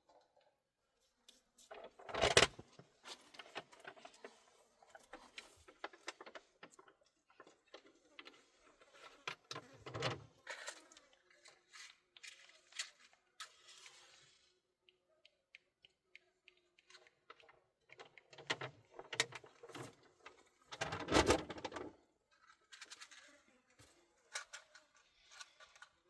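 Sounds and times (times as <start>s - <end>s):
clicks and knocks of handled objects: 1.3s - 13.6s, 14.8s - 26.0s.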